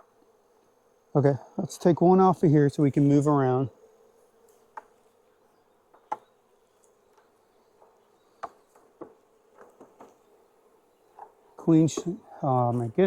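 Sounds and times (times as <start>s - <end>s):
honeybees humming: 0.0s - 13.0s
knocks of hive frames: 2.8s - 13.0s.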